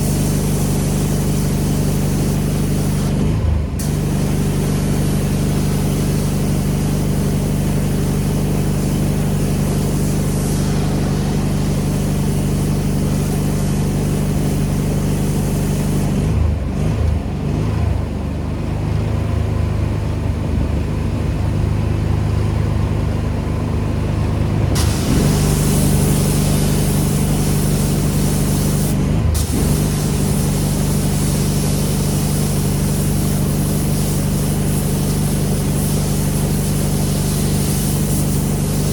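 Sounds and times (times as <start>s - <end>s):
spray hissing: 0.0s - 3.2s, 3.8s - 16.2s, 24.8s - 38.9s
pressure washer engine running: 0.0s - 38.9s.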